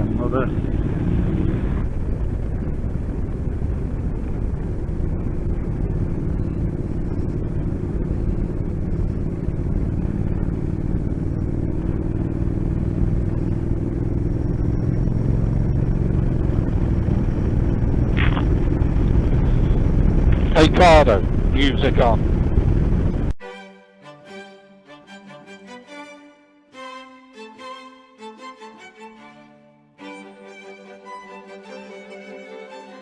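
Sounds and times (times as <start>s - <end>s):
wind rush: 0.0s - 12.1s, 14.8s - 23.4s
motorcycle engine cruising: 0.0s - 23.4s.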